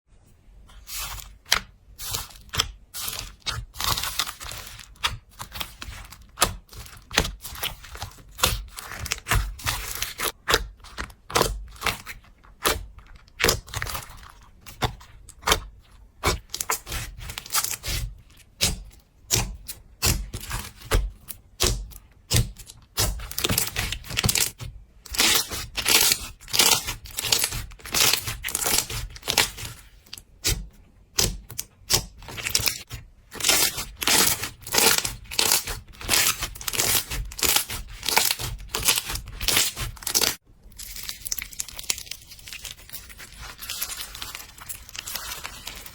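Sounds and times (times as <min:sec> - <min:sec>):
slime squishing and popping: 0:31.1 - 0:45.9.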